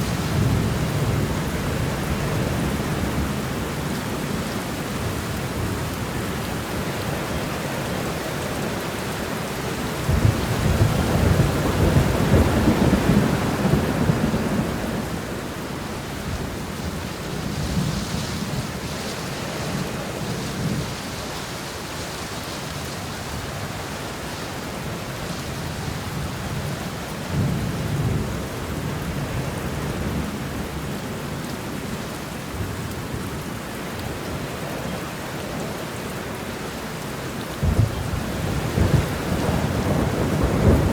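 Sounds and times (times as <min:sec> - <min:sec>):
steady rain: 0:00.0 - 0:40.9
rolling thunder: 0:10.0 - 0:15.7, 0:37.6 - 0:40.9.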